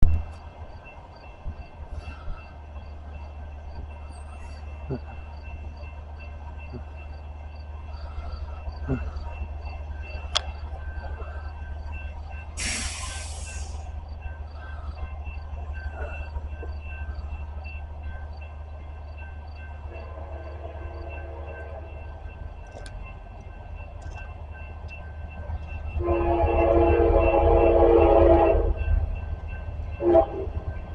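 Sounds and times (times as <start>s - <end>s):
freight train rumbling: 0.0s - 30.9s
brief hiss: 12.6s - 13.8s
locomotive horn: 19.9s - 21.9s, 26.0s - 28.9s, 30.0s - 30.7s.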